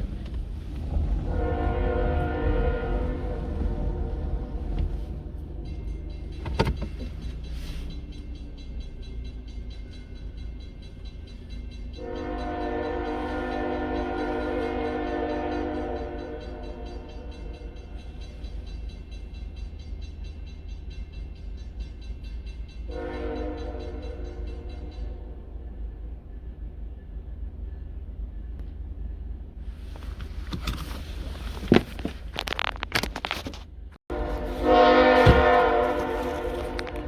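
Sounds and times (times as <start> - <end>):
locomotive air horn: 0.8 - 5.5, 12.0 - 17.7, 22.9 - 25.4, 34.1 - 37.0.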